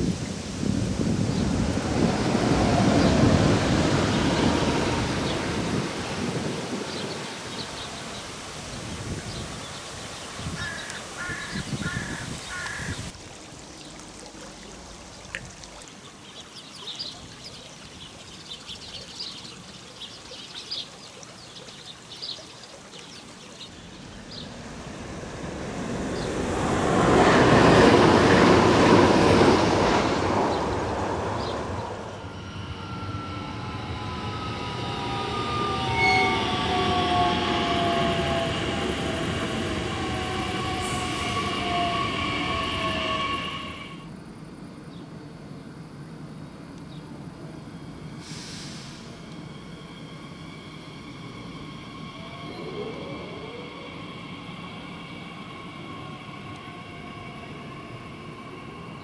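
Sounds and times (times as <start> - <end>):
train rumbling over bridge: 0.0 - 13.2, 23.7 - 59.0
birds chirping: 4.0 - 24.8
electric train motor whine: 24.1 - 45.6.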